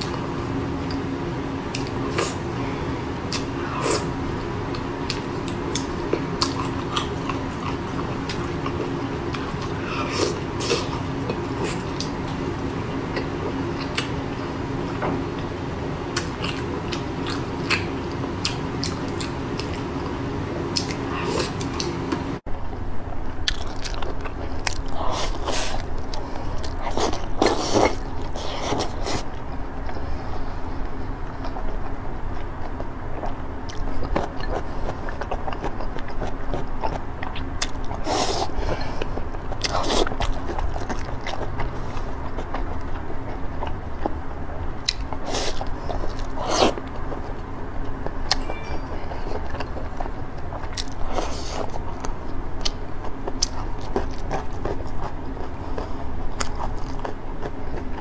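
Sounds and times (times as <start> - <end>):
woman chewing and biting: 3.3 - 14.2, 30.8 - 58.0.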